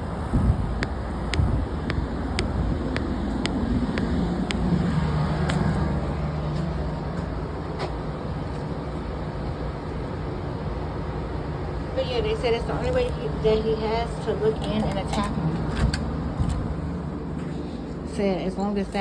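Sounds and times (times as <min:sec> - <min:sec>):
vehicle engine hum: 0:00.0 - 0:18.0
road traffic noise: 0:00.0 - 0:19.0.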